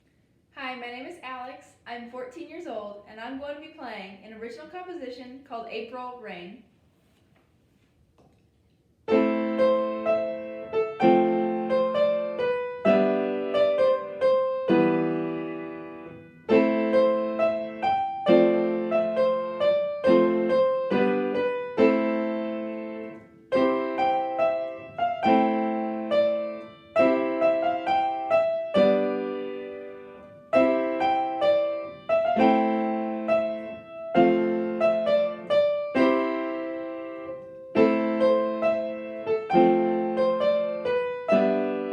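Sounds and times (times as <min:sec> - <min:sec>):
solo piano piece: 0:09.0 - 0:41.9.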